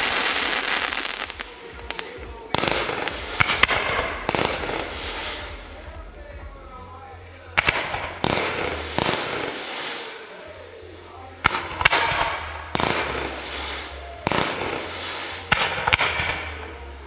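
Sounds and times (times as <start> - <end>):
firework bangs: 0.0 - 17.0
firework hissing tails: 0.0 - 17.0.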